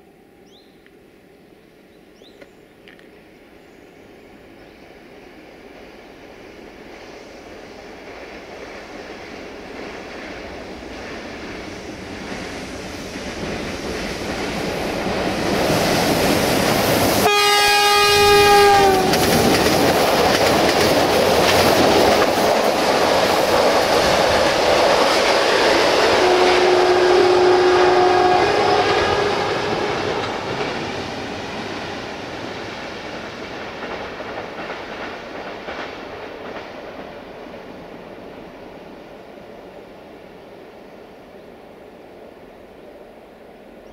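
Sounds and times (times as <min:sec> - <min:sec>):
train rumbling past: 0:00.0 - 0:43.9
locomotive horn blast: 0:17.2 - 0:19.2, 0:26.1 - 0:30.4
coaches clattering over rail joints: 0:19.0 - 0:25.4.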